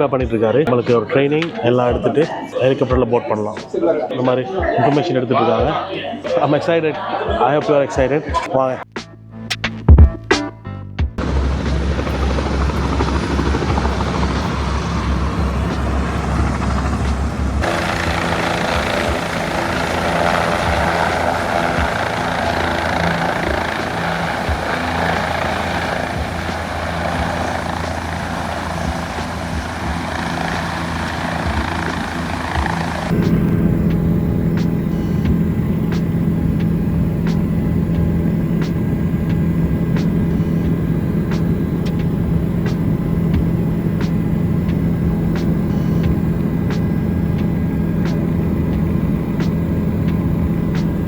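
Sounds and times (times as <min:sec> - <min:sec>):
helicopter engine and rotor: 0:11.2 - 0:51.0.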